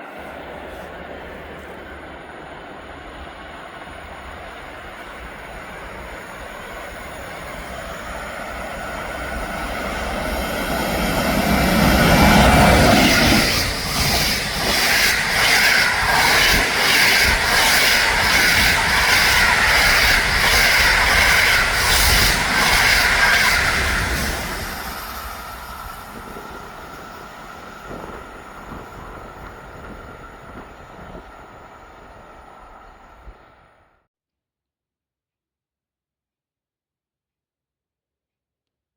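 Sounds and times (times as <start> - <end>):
train rumbling past: 0.0 - 33.9
wheels clacking over rail joints: 7.5 - 33.6
high wheel squeal: 10.1 - 26.9.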